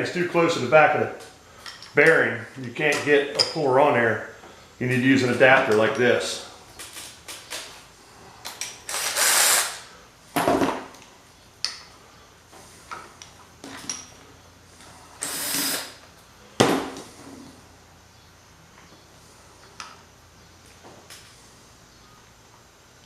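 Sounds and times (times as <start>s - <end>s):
metal tools clanking and scraping: 3.0s - 3.6s, 13.6s - 14.2s.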